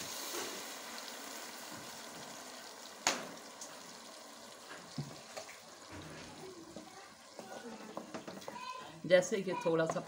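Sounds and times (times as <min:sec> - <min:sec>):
paste sizzling in hot oil: 0:00.0 - 0:10.0
wooden spoon stirring: 0:04.7 - 0:10.0.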